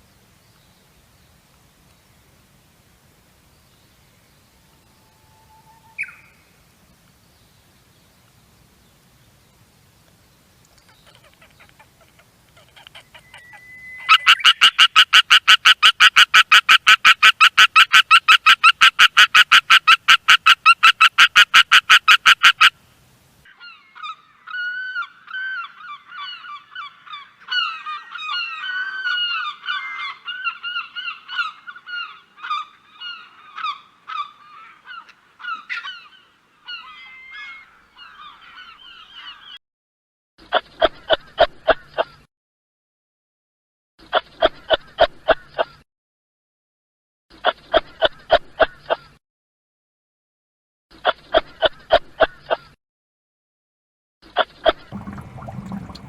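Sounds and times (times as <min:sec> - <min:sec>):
animal calls: 0:10.7 - 0:15.4.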